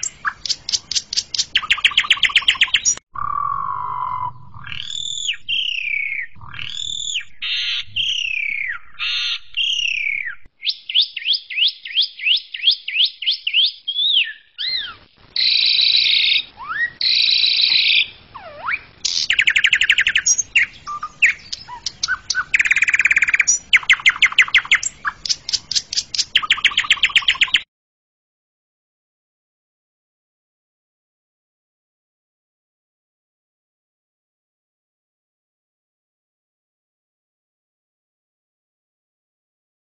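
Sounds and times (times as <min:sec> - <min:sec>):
starling singing: 0:00.0 - 0:27.6.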